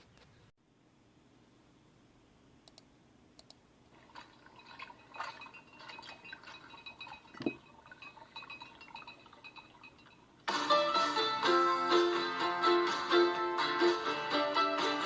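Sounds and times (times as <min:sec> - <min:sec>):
handling clicks taps and rustles: 0:04.0 - 0:10.1.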